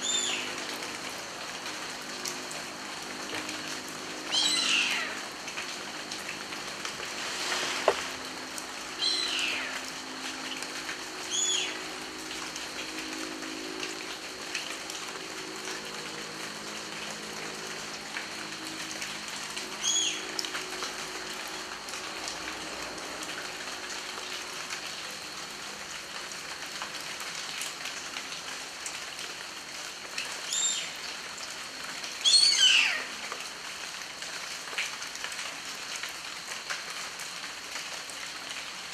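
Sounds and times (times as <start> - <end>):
steady rain falling: 0.0 - 38.9
bird chirping and whistling: 9.0 - 9.6, 32.3 - 33.0.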